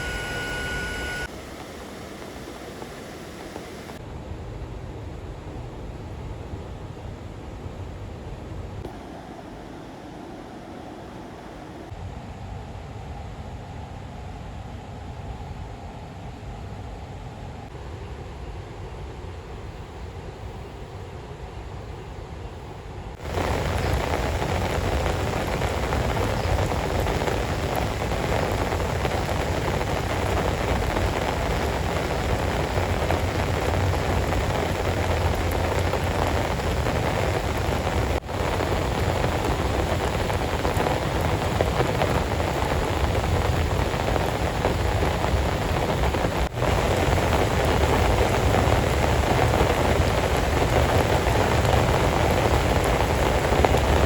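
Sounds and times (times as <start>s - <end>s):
heavy rain falling: 0.0s - 4.0s, 23.2s - 54.0s.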